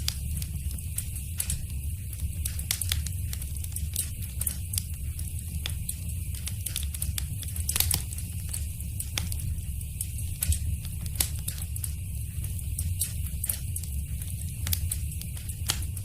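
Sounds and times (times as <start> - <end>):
fire crackles and pops: 0.0 - 16.0
low rumble of flames: 0.0 - 16.0.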